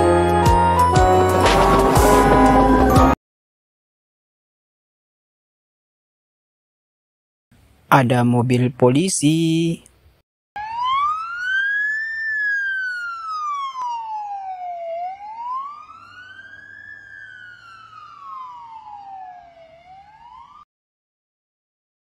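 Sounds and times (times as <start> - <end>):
police siren wailing: 0.0 - 3.2, 10.6 - 20.7.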